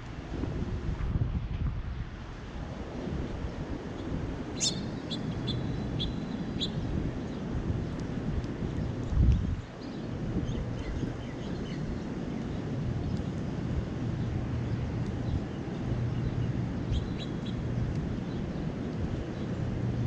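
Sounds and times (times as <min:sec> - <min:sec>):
city traffic rumble: 0:00.0 - 0:20.0
bird chirps: 0:04.6 - 0:06.8, 0:16.9 - 0:17.6.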